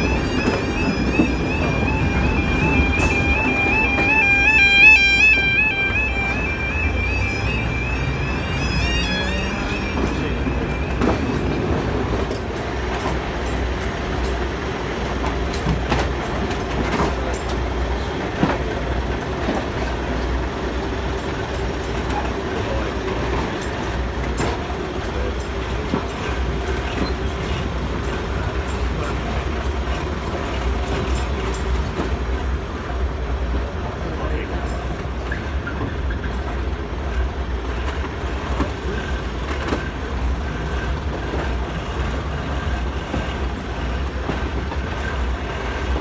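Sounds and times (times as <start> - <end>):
high wheel squeal: 0.0 - 12.2
diesel train drone: 0.0 - 46.0.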